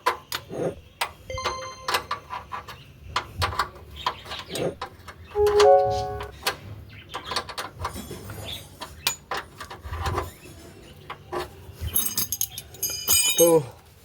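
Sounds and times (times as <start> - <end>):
hand tools clicking and clinking: 12.0 - 13.7.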